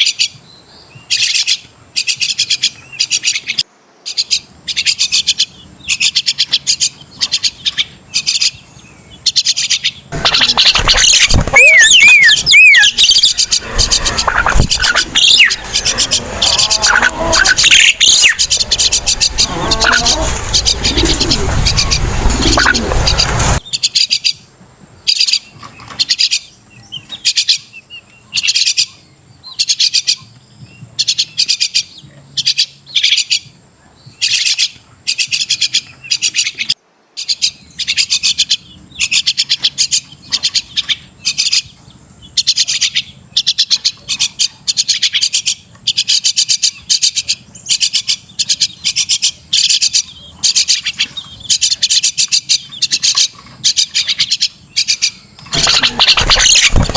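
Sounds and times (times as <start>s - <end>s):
bird chattering calls: 9.3s - 24.4s, 42.4s - 56.9s.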